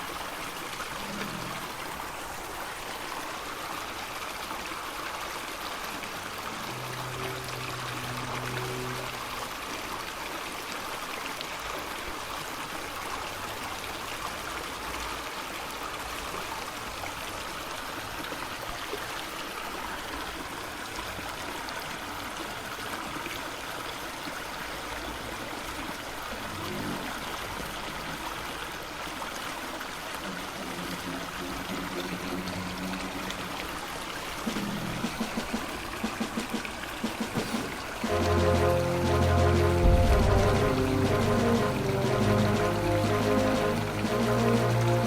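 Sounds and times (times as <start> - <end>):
rushing water: 0.0 - 45.0.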